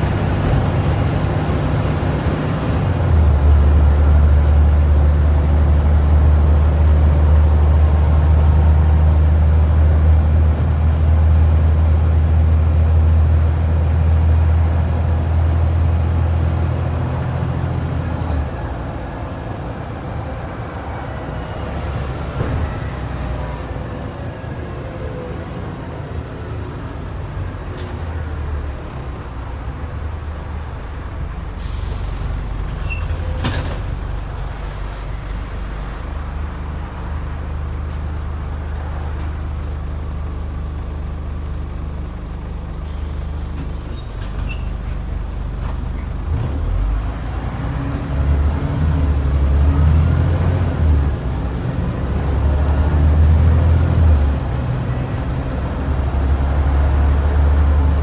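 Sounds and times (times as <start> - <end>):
bus diesel engine running: 0.0 - 58.0
air brake hiss: 21.7 - 23.7, 31.4 - 36.0, 42.8 - 45.8.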